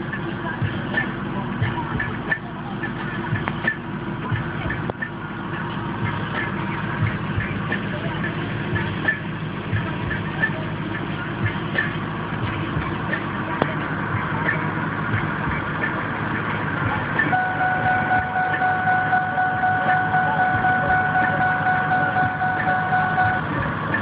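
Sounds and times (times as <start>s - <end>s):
truck engine idling: 0.0s - 24.0s
high two-note tone: 17.3s - 24.0s.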